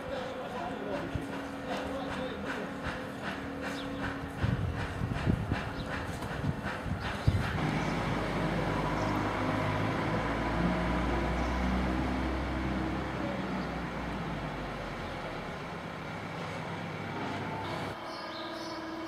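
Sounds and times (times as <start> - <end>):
vehicle engine humming: 7.6 - 18.0
road noise: 7.6 - 18.2.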